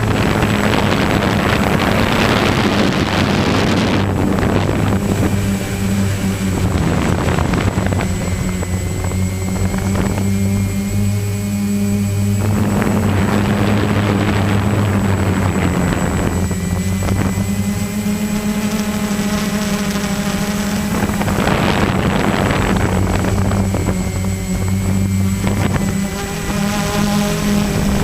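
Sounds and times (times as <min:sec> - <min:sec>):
rushing noise: 0:00.0 - 0:19.0
motor running: 0:00.0 - 0:28.0.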